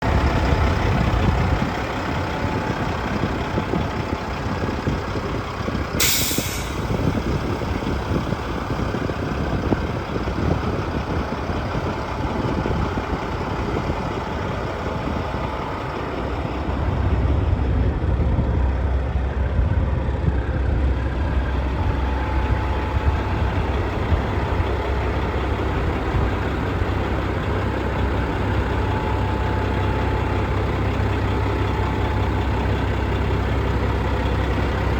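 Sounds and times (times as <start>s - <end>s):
diesel engine running: 0.0s - 34.9s
air hiss: 6.0s - 6.9s.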